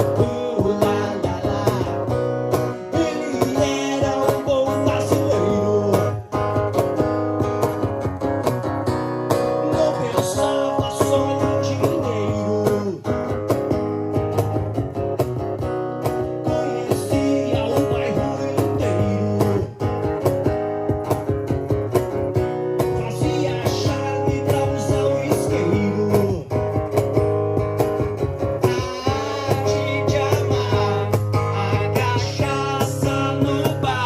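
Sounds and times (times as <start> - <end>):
acoustic guitar strumming chords: 0.0 - 34.0
bass line: 0.0 - 34.0.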